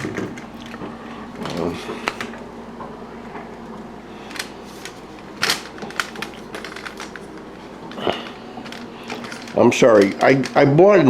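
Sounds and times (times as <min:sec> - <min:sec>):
hard objects clicking and knocking: 0:04.3 - 0:10.7.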